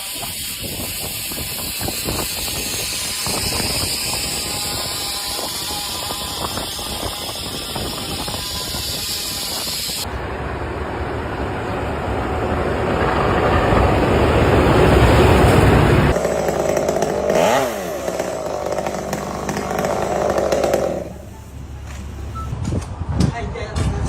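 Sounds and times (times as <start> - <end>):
motorized machinery running: 0.0 - 10.0, 16.1 - 22.1.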